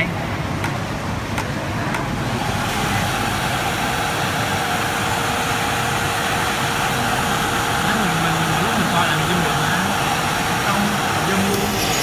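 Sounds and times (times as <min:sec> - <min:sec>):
cutting machine whirring: 0:07.2 - 0:12.0.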